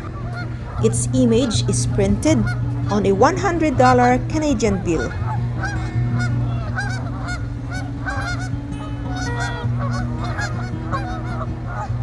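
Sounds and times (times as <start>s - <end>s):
flock of geese honking: 0.0s - 12.0s.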